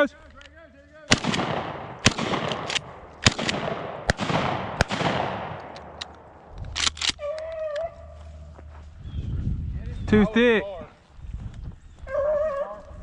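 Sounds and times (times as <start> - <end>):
shotgun shots echoing: 1.1 - 7.3.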